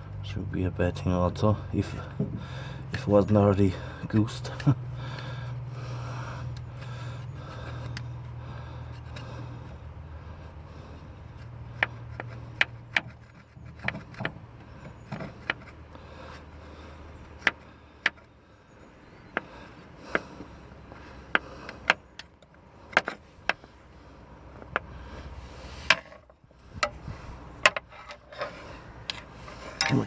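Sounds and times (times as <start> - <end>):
screwdriver scraping metal: 25.8 - 30.0.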